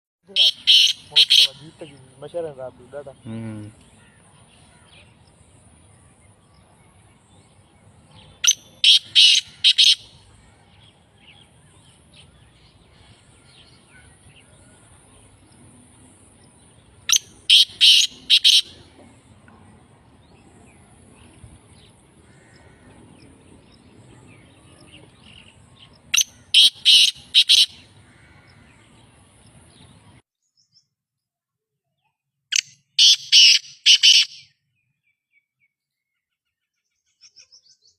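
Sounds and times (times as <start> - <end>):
francolin calling: 0.3 - 5.2, 8.2 - 15.5, 16.3 - 19.3, 24.4 - 29.1, 32.5 - 34.6.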